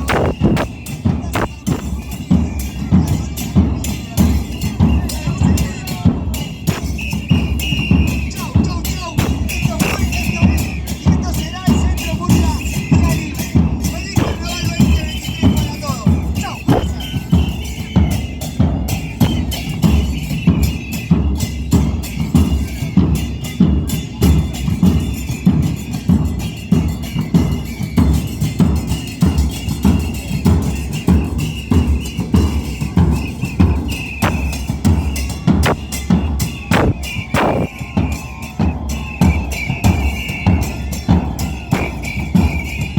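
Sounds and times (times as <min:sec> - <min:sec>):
bass drums and snares playing: 0:00.0 - 0:04.2, 0:05.2 - 0:07.5, 0:09.2 - 0:10.4, 0:14.2 - 0:15.0, 0:16.2 - 0:20.0, 0:33.7 - 0:38.8, 0:39.4 - 0:42.8.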